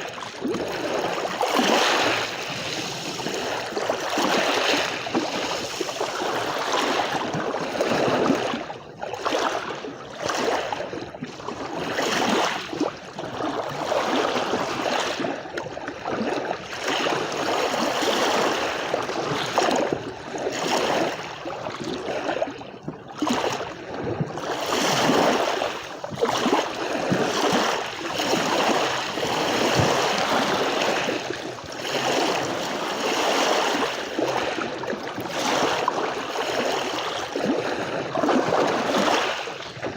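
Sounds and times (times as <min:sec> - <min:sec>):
sea waves washing onto shore: 0:24.4 - 0:39.9.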